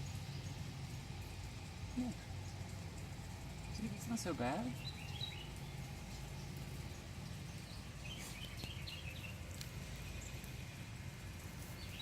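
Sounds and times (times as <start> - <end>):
faint bird chirps: 4.7 - 10.9.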